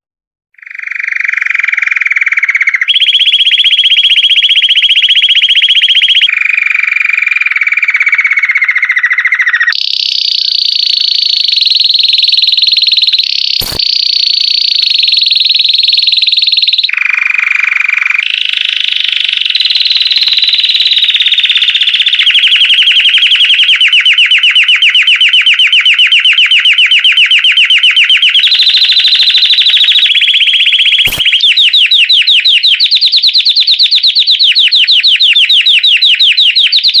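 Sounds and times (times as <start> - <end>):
canary singing trills: 0.6 - 6.6, 7.5 - 37.0
brief clicks: 13.6 - 14.0, 31.1 - 31.4.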